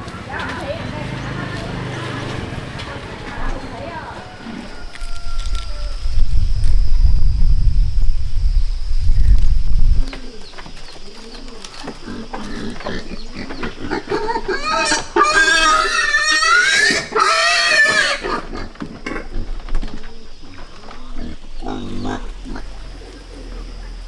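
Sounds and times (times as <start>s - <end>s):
pig grunting: 11.8s - 23.9s
pig squealing: 12.0s - 19.6s, 21.0s - 22.8s.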